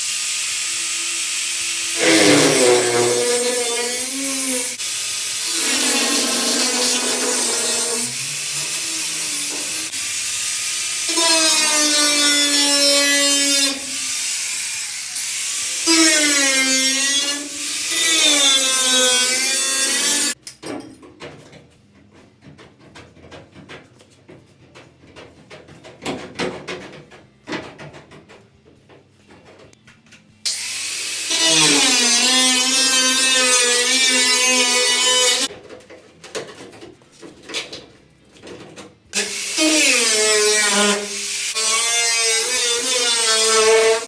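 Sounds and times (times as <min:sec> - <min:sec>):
power tool cutting sheet metal: 0:00.0 - 0:20.4, 0:30.5 - 0:35.5, 0:39.2 - 0:44.0.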